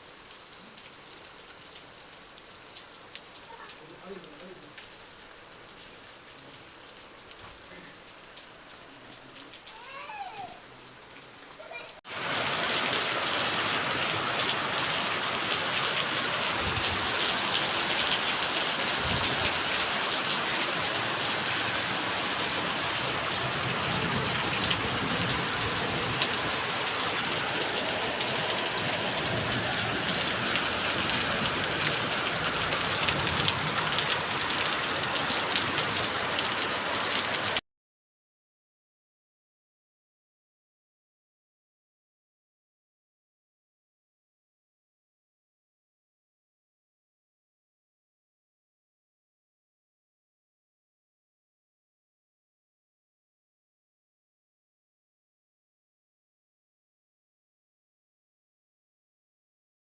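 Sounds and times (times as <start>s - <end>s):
steady rain: 0.0s - 37.6s.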